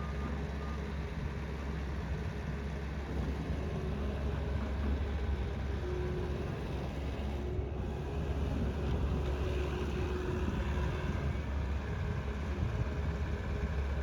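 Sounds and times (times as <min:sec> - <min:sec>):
diesel engine rumbling: 0:00.0 - 0:14.0.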